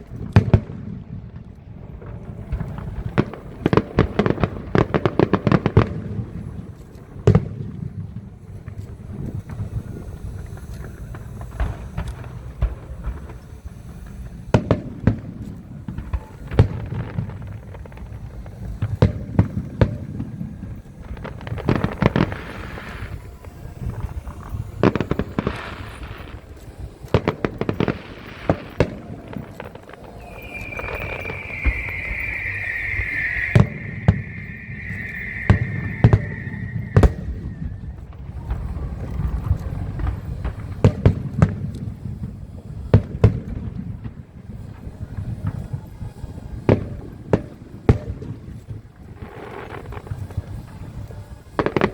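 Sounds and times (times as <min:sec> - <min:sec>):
fireworks bursting with sharp bangs: 0:00.0 - 0:51.9
hissing crackle: 0:01.4 - 0:42.9
high shrill firework whistle: 0:13.2 - 0:40.4
low rumble: 0:30.0 - 0:38.5.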